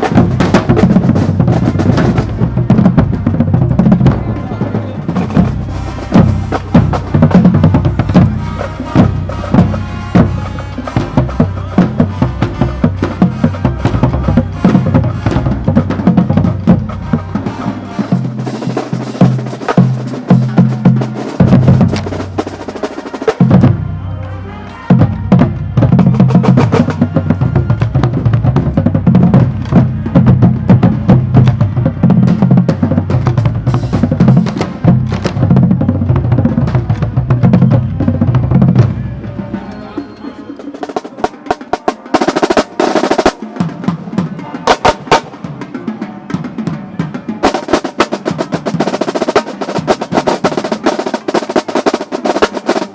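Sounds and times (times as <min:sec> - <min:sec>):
snare drums: 0:00.0 - 0:23.9, 0:24.9 - 0:52.9
bass drums: 0:00.0 - 0:24.0, 0:24.9 - 0:39.2
tenor drums: 0:00.0 - 0:24.0, 0:24.9 - 0:52.9.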